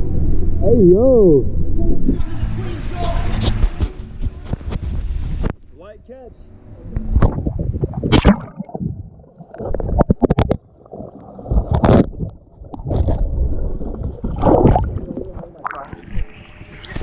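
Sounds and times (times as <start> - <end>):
low rumbling buffets: 0.0 - 10.0
water splashing and sloshing: 7.0 - 17.0
water slaps: 8.1 - 8.8.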